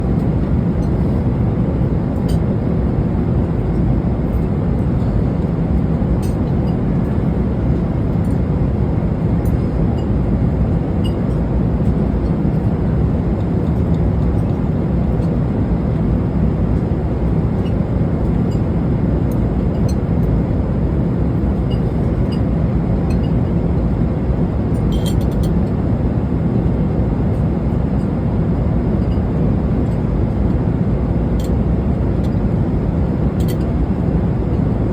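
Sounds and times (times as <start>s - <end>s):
airliner cabin rumble: 0.0s - 34.9s.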